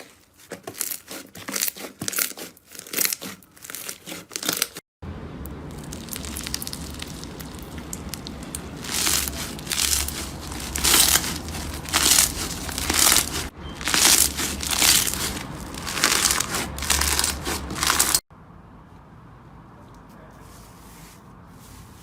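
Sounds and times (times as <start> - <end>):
slime crackling and crunching: 0.0 - 4.8, 5.5 - 18.2.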